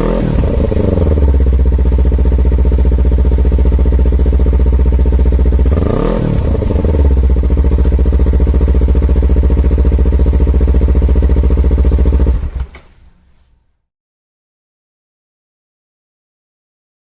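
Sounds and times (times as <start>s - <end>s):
motorcycle engine idling and revving: 0.0s - 12.8s.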